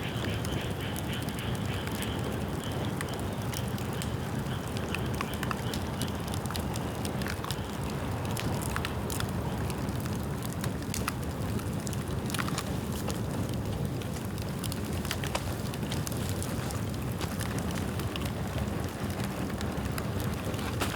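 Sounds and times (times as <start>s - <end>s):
bamboo crackles and snaps: 4.8s - 20.9s
bonfire flame rushing: 6.4s - 20.9s.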